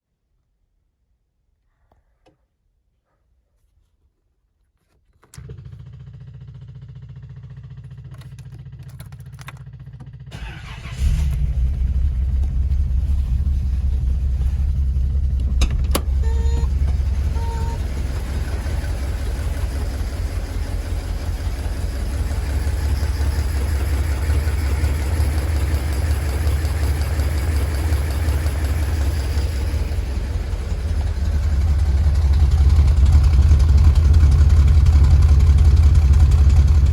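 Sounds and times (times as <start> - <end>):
car engine starting and idling: 5.2 - 36.9
low steady hum: 7.8 - 24.3.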